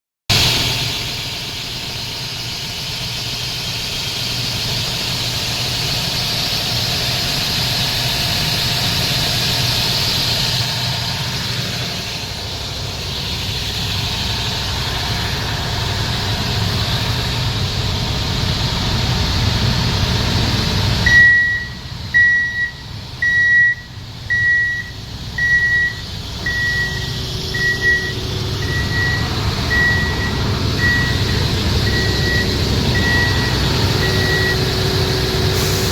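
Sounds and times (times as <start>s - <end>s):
diesel generator running: 0.3s - 35.9s
high beep: 21.1s - 34.7s.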